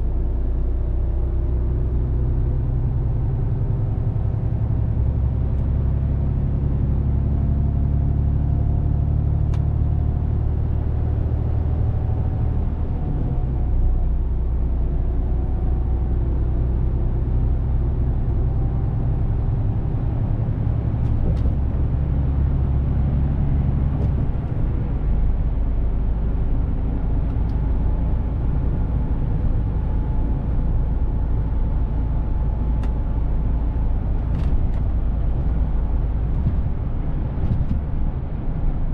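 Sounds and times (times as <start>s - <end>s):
truck diesel engine drone: 9.9s - 38.9s.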